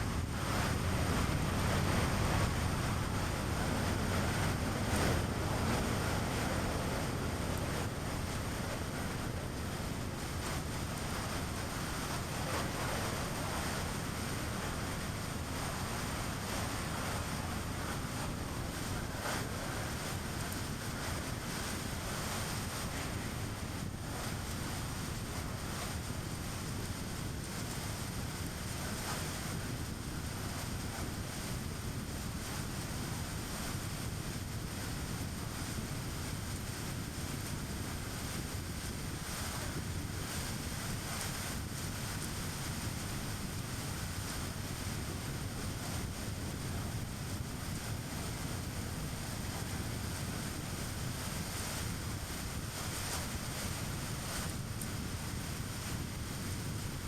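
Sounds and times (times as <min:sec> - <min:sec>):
rushing wind: 0:00.0 - 0:57.0.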